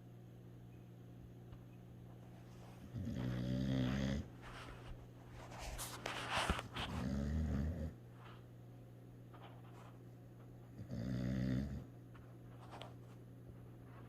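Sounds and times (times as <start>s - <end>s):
dog snoring: 2.8s - 4.4s, 6.8s - 8.0s, 10.8s - 11.9s.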